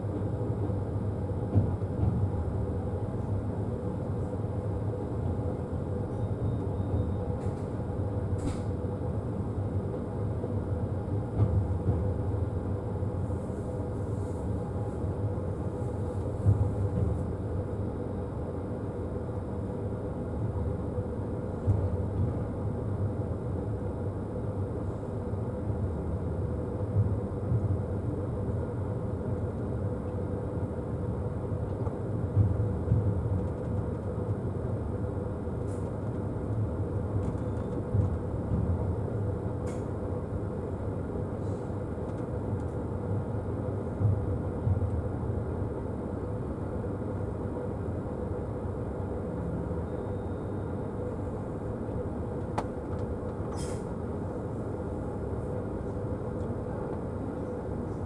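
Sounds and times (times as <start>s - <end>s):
train wheels rumbling on rails: 0.0s - 17.8s, 25.6s - 45.3s.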